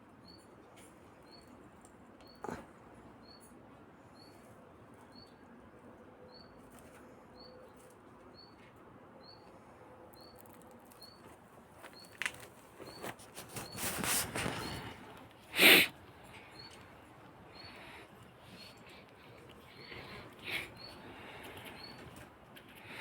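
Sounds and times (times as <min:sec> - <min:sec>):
rustling and scratching: 0:10.3 - 0:15.2.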